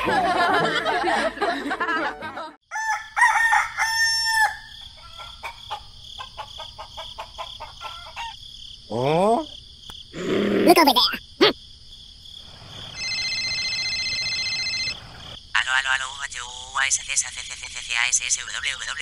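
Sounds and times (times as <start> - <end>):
rooster crowing: 2.7 - 5.8, 6.4 - 8.4
chickens clucking: 5.0 - 8.4.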